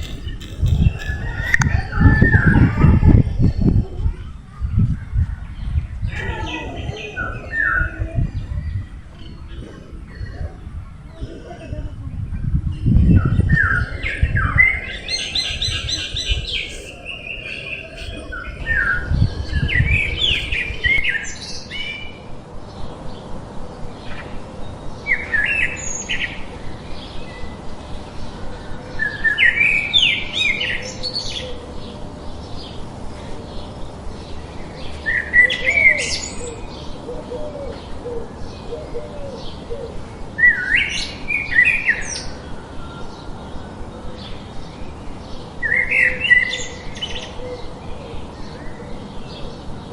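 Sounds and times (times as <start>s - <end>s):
songbird warbling: 0.0s - 3.8s, 13.1s - 22.9s
bird chirps: 0.0s - 3.9s, 12.8s - 49.9s
low rumble: 0.0s - 35.4s.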